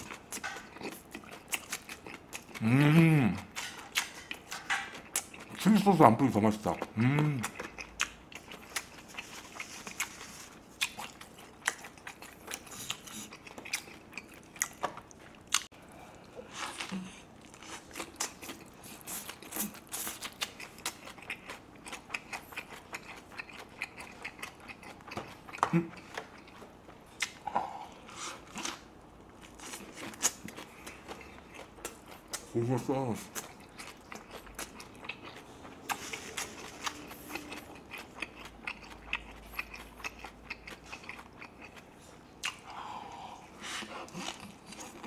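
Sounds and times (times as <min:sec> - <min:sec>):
chewing and biting food: 0:00.0 - 0:42.7, 0:43.8 - 0:45.0.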